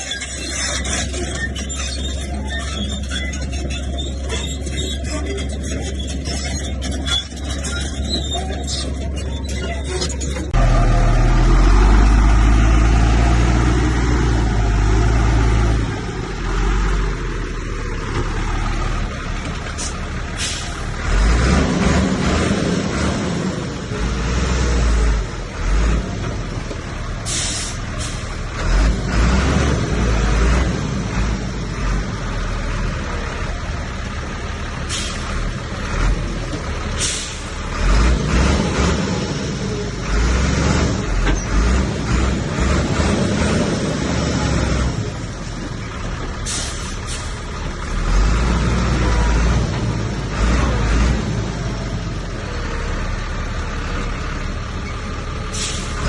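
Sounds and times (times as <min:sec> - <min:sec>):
heavy diesel engines rumbling: 0:00.0 - 0:56.0.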